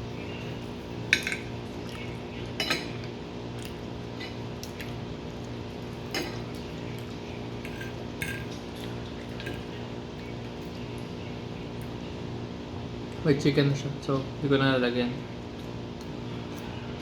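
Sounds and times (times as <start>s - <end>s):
steady low hum: 0.0s - 17.0s
cutlery clinking on plate: 2.6s - 3.1s.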